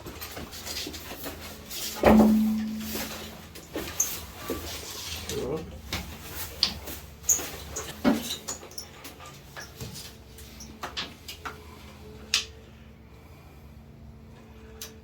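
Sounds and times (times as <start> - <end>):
faint steady hum: 2.0 - 4.6.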